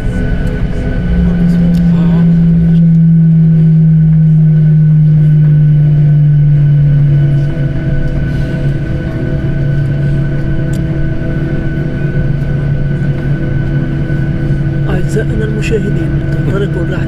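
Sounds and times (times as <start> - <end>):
airliner cabin hum: 0.0 - 17.0
whining tones: 0.0 - 17.0.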